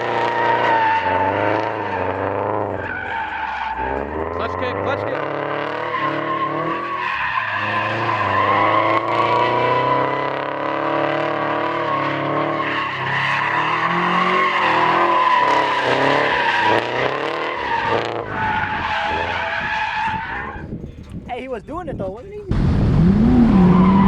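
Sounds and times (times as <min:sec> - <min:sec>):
tyres squealing: 0:00.0 - 0:10.3, 0:11.7 - 0:22.6
car engine revving: 0:00.0 - 0:24.0.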